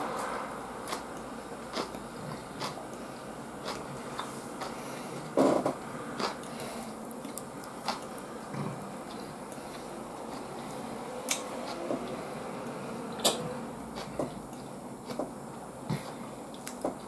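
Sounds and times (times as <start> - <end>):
person chewing: 0.8 - 11.8, 13.9 - 15.3.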